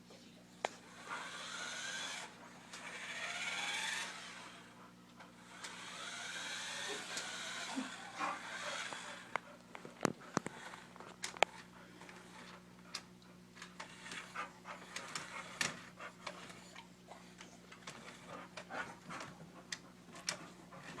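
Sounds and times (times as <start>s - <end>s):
dog panting and snuffling: 7.8s - 21.0s.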